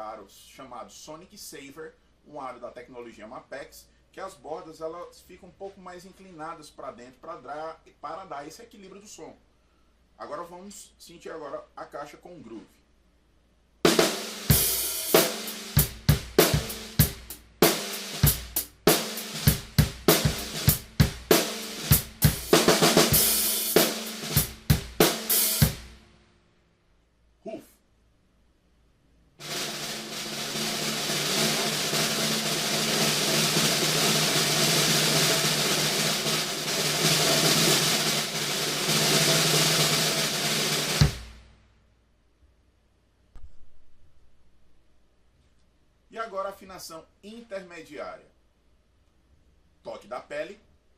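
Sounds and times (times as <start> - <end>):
cymbals: 13.9 - 26.1, 29.4 - 41.4
metal snare drum beat: 13.9 - 26.1, 29.4 - 41.5.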